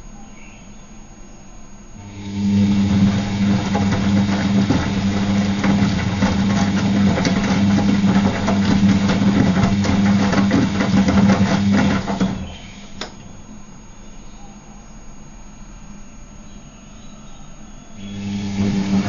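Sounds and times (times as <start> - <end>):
washing machine motor hum: 1.9 - 13.9, 17.9 - 19.0
laundry clattering and sloshing: 2.2 - 13.0, 18.1 - 19.0.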